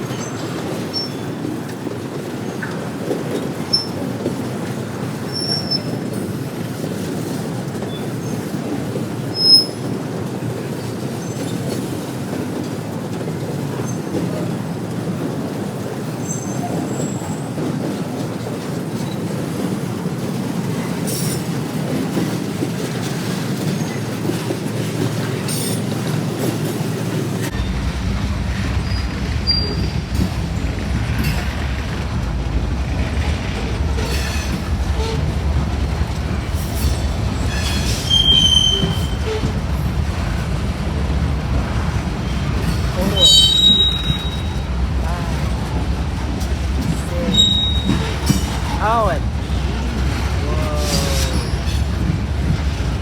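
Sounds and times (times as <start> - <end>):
train wheels on rails: 0.0 - 53.0
high-pitched wheel squeals: 37.4 - 39.5, 43.0 - 44.7, 47.3 - 48.5.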